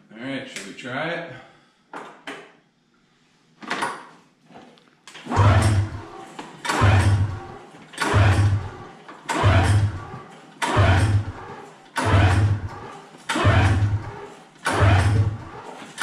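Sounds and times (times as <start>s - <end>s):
engine cranking without catching: 5.1s - 16.0s
recoil starter pulls: 5.1s - 16.0s.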